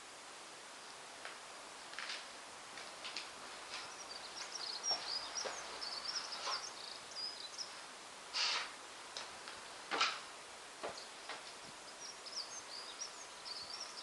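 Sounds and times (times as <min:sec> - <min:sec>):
small birds twittering: 0:03.2 - 0:08.8, 0:09.5 - 0:14.0
breathy hissing bursts: 0:08.3 - 0:08.8.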